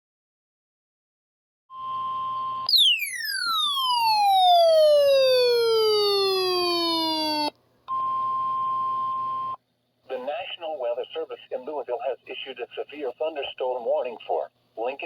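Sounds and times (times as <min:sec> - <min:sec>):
falling electronic whistle: 0:01.7 - 0:07.5
steady electronic alert tone: 0:02.7 - 0:05.1.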